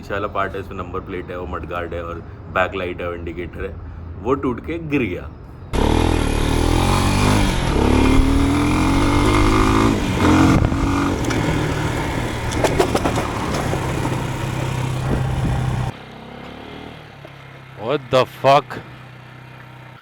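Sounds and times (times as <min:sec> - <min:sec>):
motorcycle engine revving: 0:05.7 - 0:20.0
sharp clattering knocks: 0:06.5 - 0:15.9.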